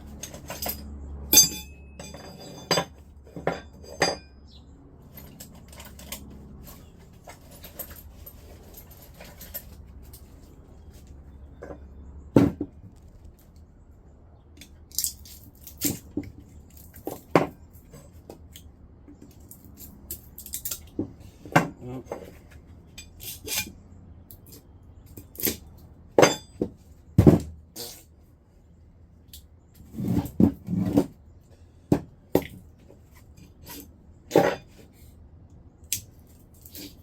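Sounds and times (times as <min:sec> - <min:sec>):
metal clinks and knocks: 0:00.0 - 0:13.1, 0:24.3 - 0:28.0.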